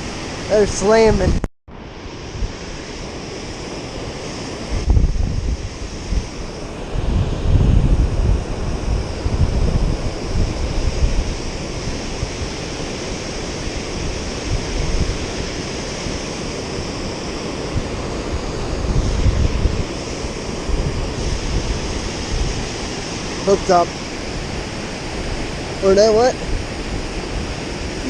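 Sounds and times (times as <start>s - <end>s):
wind buffeting microphone: 0.0s - 28.0s
water rushing through spillway: 5.6s - 28.0s.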